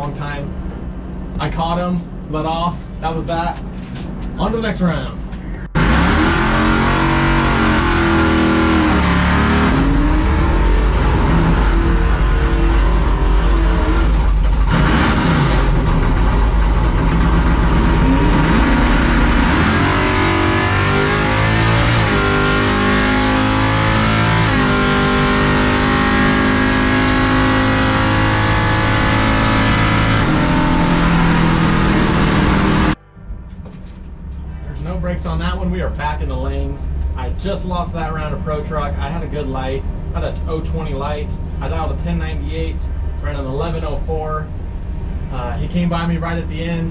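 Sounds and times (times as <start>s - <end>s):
background music: 0.0s - 7.0s, 33.0s - 37.0s
race engine revving hard: 4.9s - 33.0s.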